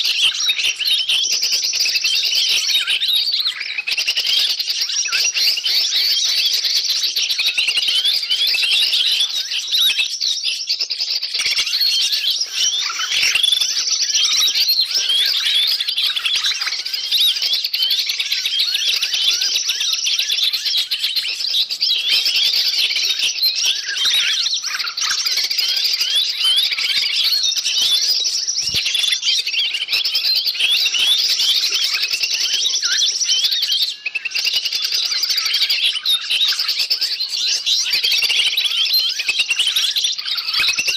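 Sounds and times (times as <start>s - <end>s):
songbirds chirping in chorus: 0.0s - 40.9s.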